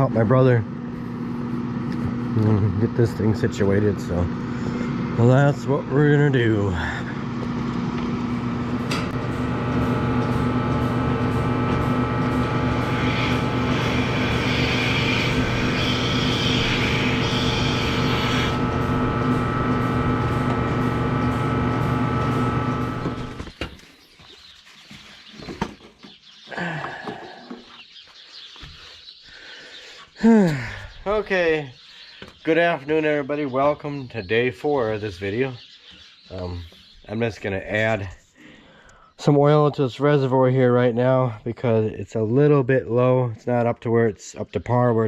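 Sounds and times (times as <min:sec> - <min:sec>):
farm machine engine running: 0:00.0 - 0:23.6.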